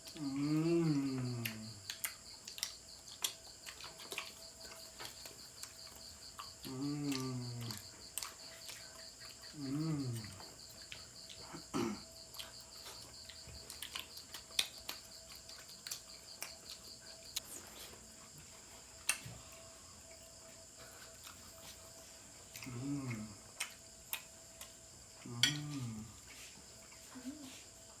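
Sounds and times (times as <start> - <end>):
cricket trilling: 0.0 - 28.0
person mumbling: 6.7 - 7.8, 25.2 - 26.2.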